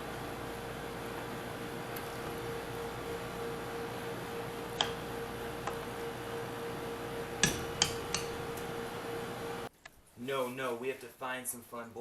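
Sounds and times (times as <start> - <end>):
low hum: 0.0 - 9.7
sharp clicks or knocks: 7.4 - 8.4.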